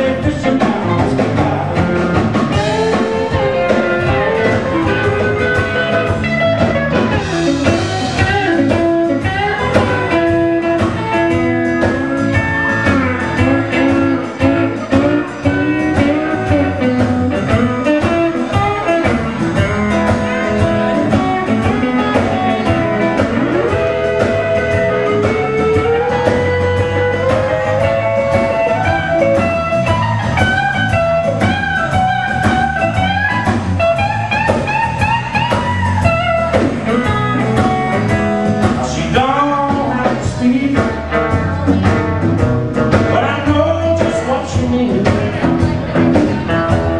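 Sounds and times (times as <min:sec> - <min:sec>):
blues band playing: 0:00.0 - 0:46.9
lead guitar with bent notes: 0:00.0 - 0:46.9.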